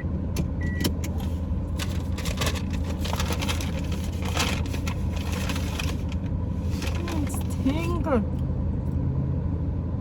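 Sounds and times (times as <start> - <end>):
car engine humming: 0.0 - 10.0
crackles and rustles: 1.7 - 7.7.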